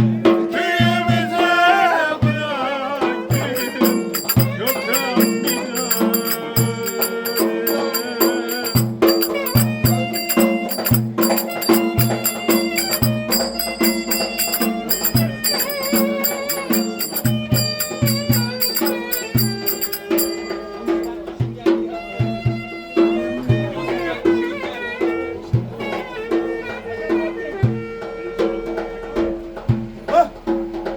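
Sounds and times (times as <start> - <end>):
steady low drum beat: 3.3 - 20.8
wavering folk melody: 3.3 - 21.1
rattling percussion: 3.3 - 21.3.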